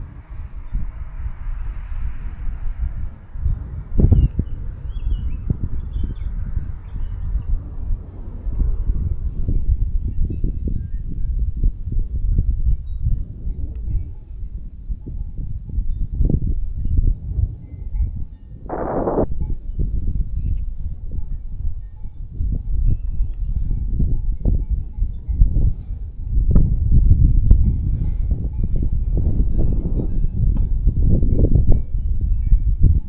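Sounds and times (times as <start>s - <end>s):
wind buffeting microphone: 0.0s - 33.0s
faint high-pitched whine: 12.4s - 26.3s
brief noisy burst: 18.7s - 19.4s.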